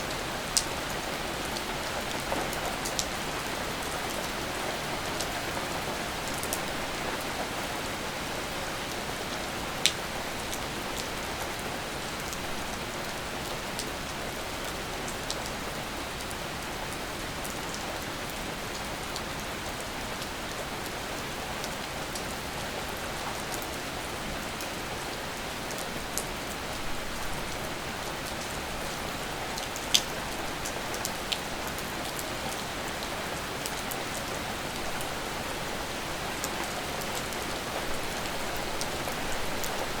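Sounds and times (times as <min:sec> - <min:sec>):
steady rain hiss: 0:00.0 - 0:40.0.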